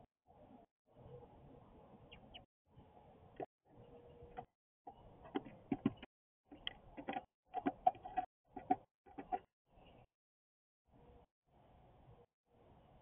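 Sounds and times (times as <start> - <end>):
bird chirps: 2.0 - 2.5, 3.7 - 5.1
birds tapping at feeder: 4.1 - 9.5.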